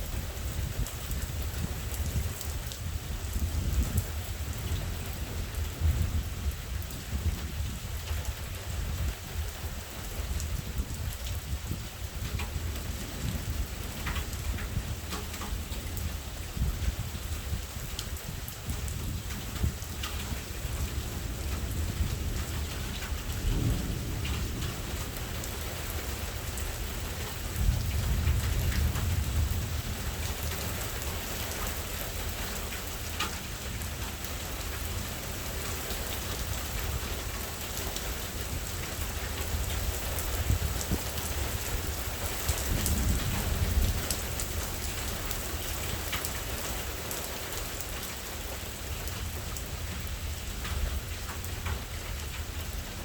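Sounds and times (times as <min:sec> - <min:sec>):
steady rain falling: 0:00.0 - 0:53.0
thunder rolling: 0:39.6 - 0:44.8.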